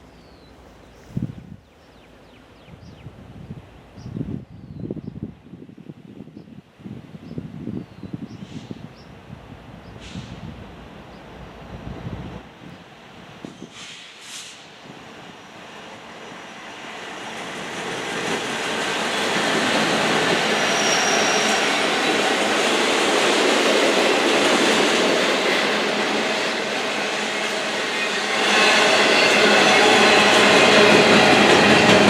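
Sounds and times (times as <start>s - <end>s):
train wheels rumbling on rails: 9.6s - 32.0s
faint wheel squeal: 20.6s - 21.6s.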